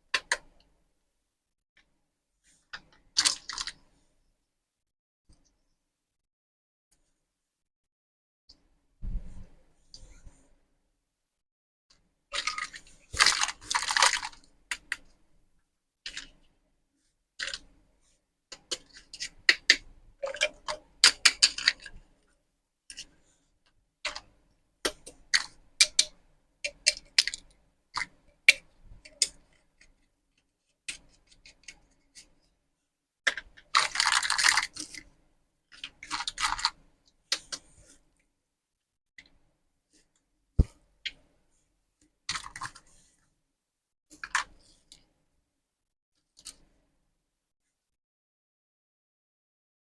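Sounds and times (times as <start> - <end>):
rustling or crinkling: 12.3 - 14.6, 33.7 - 35.1
plastic toy pieces clicking: 33.3 - 35.0.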